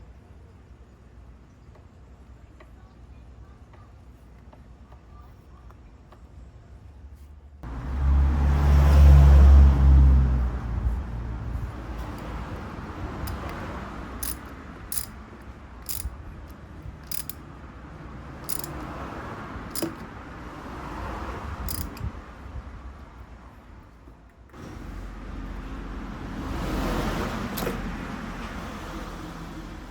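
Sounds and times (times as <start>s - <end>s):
small metal parts clicking: 13.2s - 13.6s, 14.2s - 17.4s, 18.4s - 18.8s, 19.7s - 20.0s, 21.7s - 22.1s.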